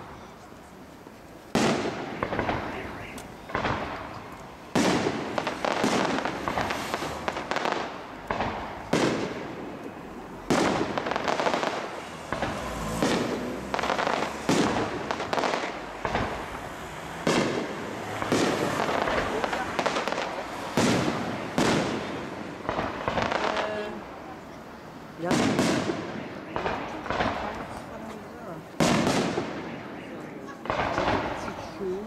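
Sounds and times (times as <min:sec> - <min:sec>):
crackling rumbling tail: 0:00.0 - 0:32.0
firework shells bursting: 0:01.5 - 0:23.7.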